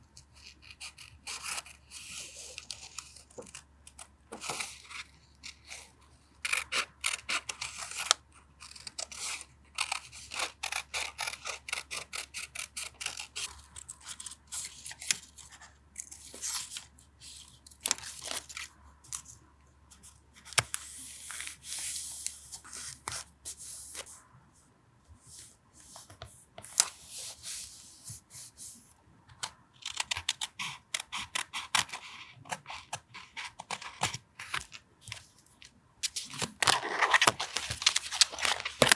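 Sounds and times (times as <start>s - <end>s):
paper tearing and crinkling: 36.1s - 38.9s.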